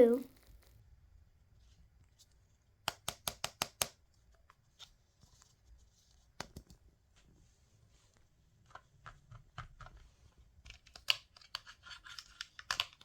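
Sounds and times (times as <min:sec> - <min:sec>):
small objects clicking in hands: 0:10.6 - 0:13.0.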